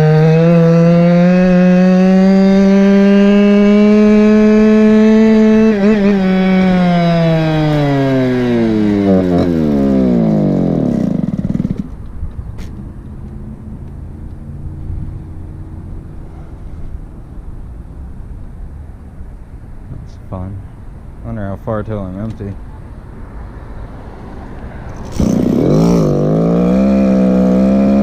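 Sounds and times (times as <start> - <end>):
two-stroke scooter engine winding down: 0.0 - 12.0, 24.9 - 28.0.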